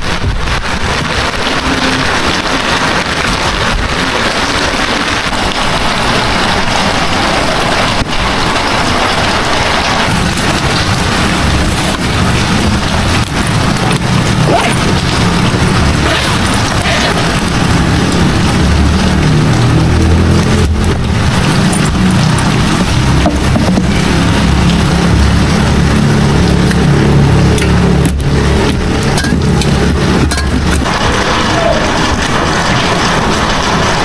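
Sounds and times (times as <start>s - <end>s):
heavy rain hissing: 0.0s - 34.0s
low rumble: 10.1s - 31.4s.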